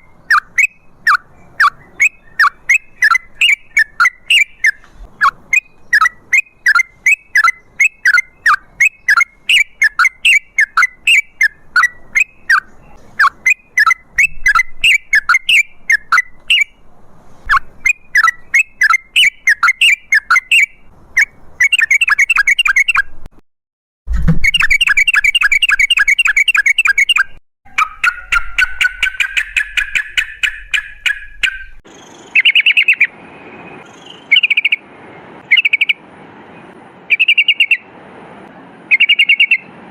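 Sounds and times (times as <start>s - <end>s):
bird chirping rapidly: 0.0s - 16.9s, 17.5s - 23.3s, 24.4s - 37.9s, 38.9s - 39.8s.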